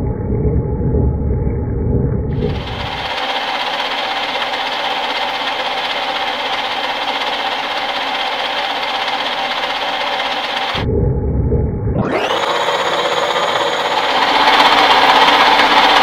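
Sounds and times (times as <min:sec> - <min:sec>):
metal lathe whirring: 0:02.4 - 0:10.8, 0:12.1 - 0:16.0.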